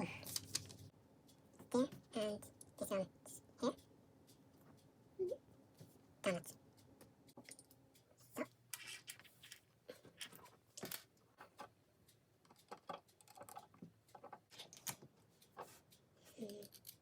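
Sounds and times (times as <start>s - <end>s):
plastic pieces clicking: 0.2s - 0.8s, 12.5s - 15.0s, 16.3s - 17.0s.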